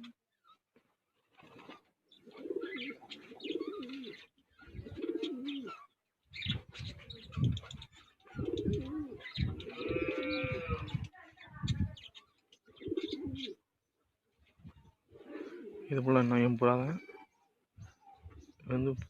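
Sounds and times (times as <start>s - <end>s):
pigeons cooing: 0.0s - 0.2s, 1.3s - 11.1s, 12.7s - 13.6s, 14.9s - 18.7s.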